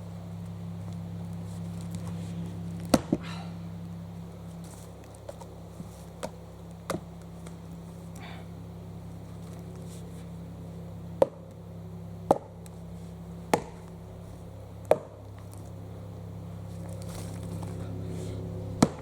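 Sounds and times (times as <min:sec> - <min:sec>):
axe chopping log: 0:02.8 - 0:03.4, 0:06.1 - 0:07.6, 0:11.2 - 0:11.4, 0:12.2 - 0:12.5, 0:13.5 - 0:14.0, 0:14.8 - 0:15.2, 0:18.8 - 0:19.0.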